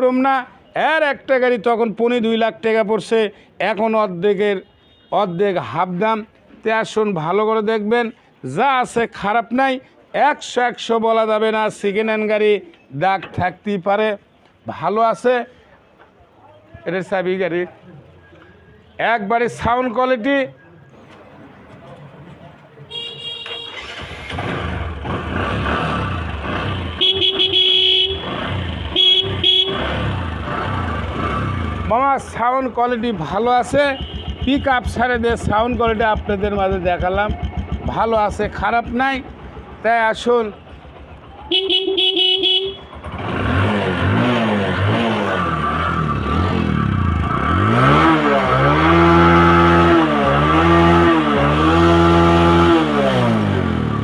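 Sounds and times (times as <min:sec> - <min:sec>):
horn blasts and toots: 0:22.9 - 0:24.4, 0:25.5 - 0:31.7, 0:33.6 - 0:38.5, 0:41.5 - 0:45.1
motorcycle engine revving: 0:23.4 - 0:54.0
person talking: 0:31.9 - 0:40.6.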